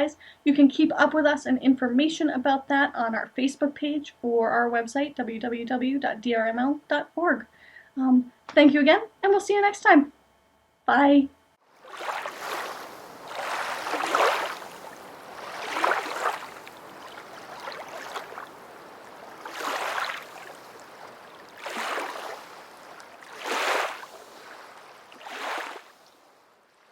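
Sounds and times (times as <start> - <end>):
small waves lapping: 11.6 - 26.9.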